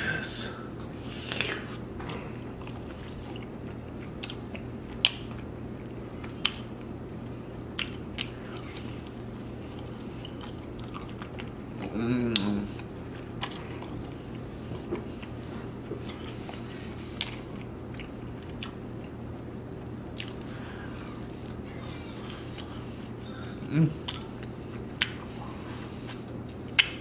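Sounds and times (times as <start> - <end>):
low background hum: 0.0 - 27.0
chewing and biting: 1.3 - 6.8, 7.7 - 15.4, 16.0 - 19.2, 20.1 - 23.2, 24.0 - 27.0
person humming: 11.8 - 12.8, 23.4 - 24.1
wet mouth clicks and smacks: 25.0 - 25.2, 26.1 - 27.0.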